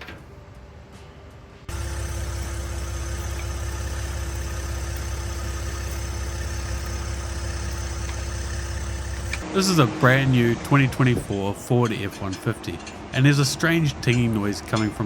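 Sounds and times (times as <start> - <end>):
thin ringing tone: 1.7 - 9.3
engine idling: 1.7 - 9.5.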